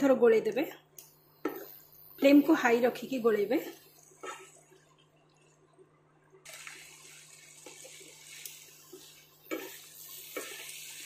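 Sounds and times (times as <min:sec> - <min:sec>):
vegetables sizzling in a pan: 0:01.4 - 0:04.6, 0:06.5 - 0:11.0
spatula tapping and scraping pan: 0:08.9 - 0:10.8.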